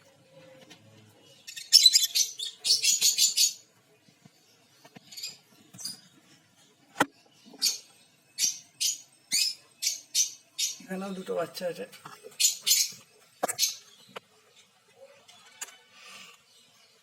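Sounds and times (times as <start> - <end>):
lovebirds chattering calls: 1.3 - 3.7, 7.0 - 17.0.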